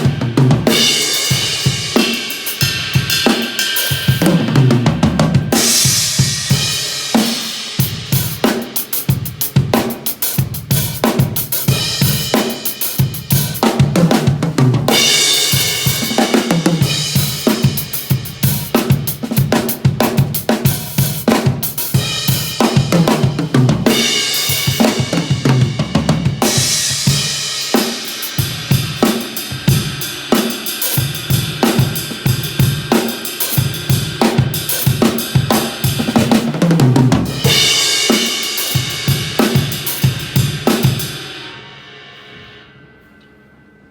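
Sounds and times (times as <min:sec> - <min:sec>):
cymbal crashes: 0:00.0 - 0:04.7, 0:05.4 - 0:09.3, 0:14.9 - 0:19.0, 0:21.8 - 0:36.0, 0:37.3 - 0:43.2
drum kit groove: 0:00.0 - 0:42.6.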